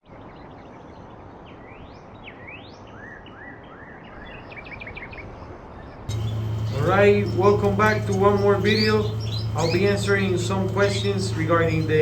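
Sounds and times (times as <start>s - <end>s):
finch singing: 6.1s - 12.0s
steady background hiss: 6.1s - 12.0s.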